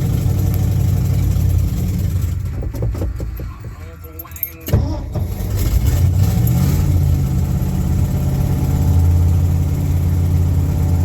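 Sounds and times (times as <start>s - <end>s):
old engine high idle: 0.0s - 4.0s.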